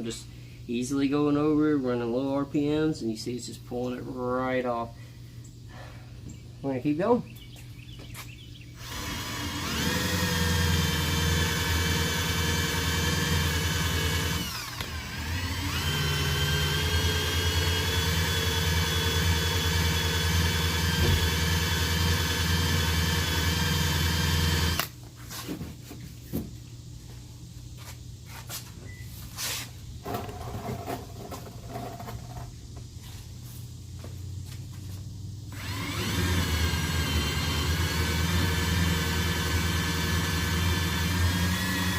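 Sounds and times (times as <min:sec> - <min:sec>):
drill running at low speed: 0:08.8 - 0:24.9, 0:35.5 - 0:41.9.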